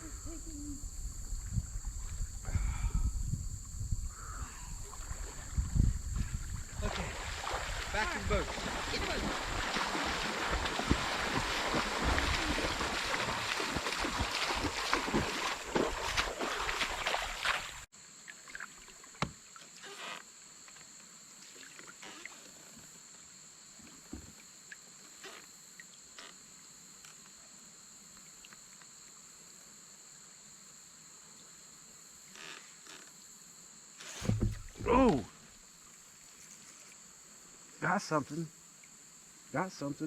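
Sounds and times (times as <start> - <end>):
insects droning: 0.0 - 40.0
water splashing and rushing: 4.8 - 19.8, 34.2 - 35.4
faint knocks on kayak: 34.2 - 34.9.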